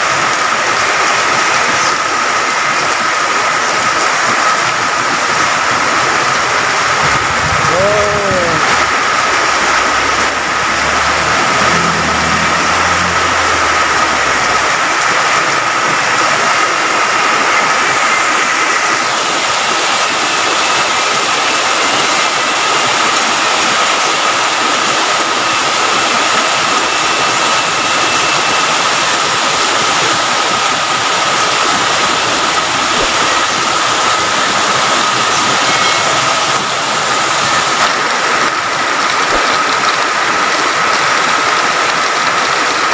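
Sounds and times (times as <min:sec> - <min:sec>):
heavy rain pouring: 0:00.0 - 0:42.9
low rumble: 0:04.8 - 0:17.2
thin high-pitched tone: 0:35.1 - 0:37.3.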